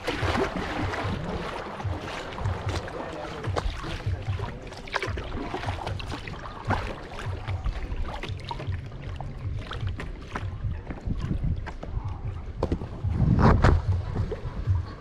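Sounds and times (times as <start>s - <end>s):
paddle splashing water: 0.0s - 14.8s
wind buffeting microphone: 6.7s - 15.0s.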